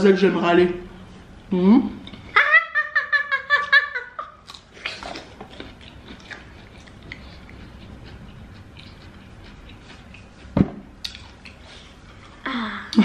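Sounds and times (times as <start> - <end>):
people chewing: 4.2 - 13.0.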